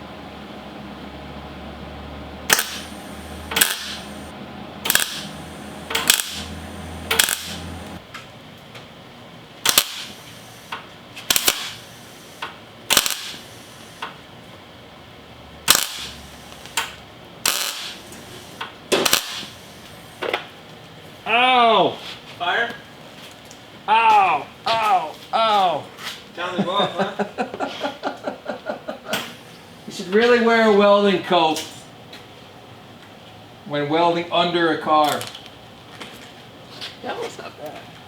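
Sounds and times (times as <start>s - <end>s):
welder crackling bursts: 2.5s - 8.0s, 9.6s - 14.2s, 15.6s - 20.4s.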